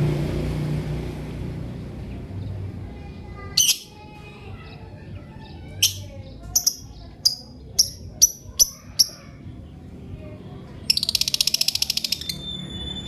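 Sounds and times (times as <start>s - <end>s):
birds chirping: 1.8s - 13.0s
thin high whistle: 12.2s - 13.0s.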